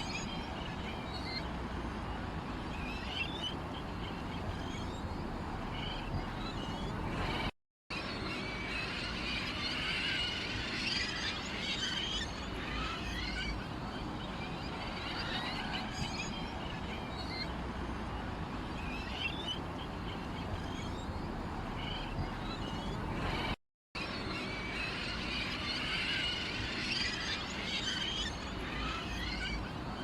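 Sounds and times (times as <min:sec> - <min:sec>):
small birds chirping and twittering: 0:00.0 - 0:30.0.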